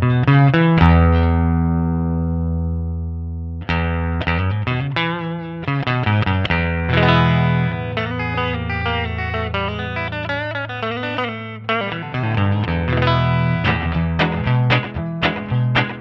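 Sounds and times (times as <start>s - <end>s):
electric guitar notes: 0.0s - 16.0s
low guitar note ringing: 6.7s - 16.0s.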